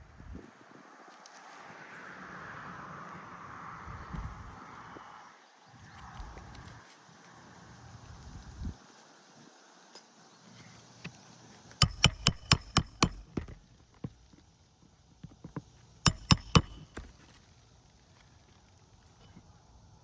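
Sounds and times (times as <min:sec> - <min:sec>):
hammer striking roofing nails: 0:11.8 - 0:13.6, 0:16.1 - 0:17.2
light hammer taps: 0:11.8 - 0:13.6, 0:15.5 - 0:17.1.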